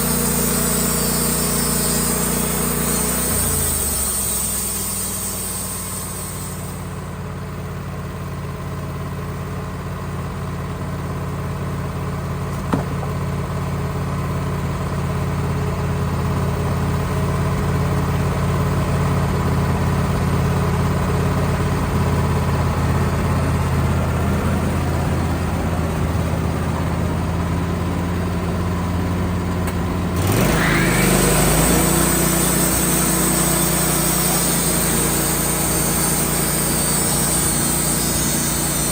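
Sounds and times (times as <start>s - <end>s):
hiss: 0.0s - 7.1s, 30.2s - 38.9s
sawmill engine running: 0.0s - 38.9s.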